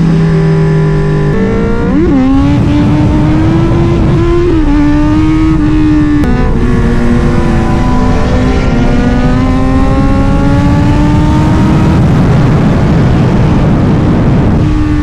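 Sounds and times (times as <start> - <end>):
motorcycle engine accelerating: 0.0 - 15.0
wind and road noise: 0.0 - 15.0.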